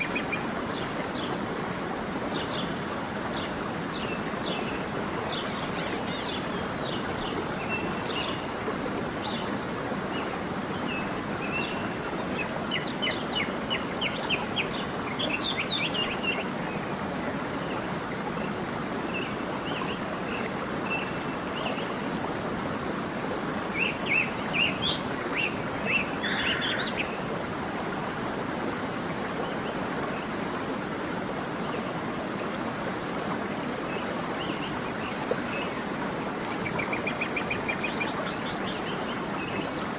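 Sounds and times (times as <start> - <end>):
stream running: 0.0 - 39.9
songbirds chirping: 22.9 - 28.5.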